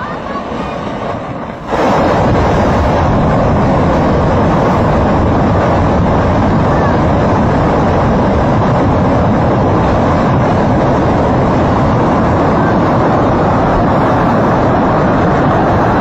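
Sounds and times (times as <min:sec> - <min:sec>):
waterfall deep rushing: 0:00.0 - 0:16.0.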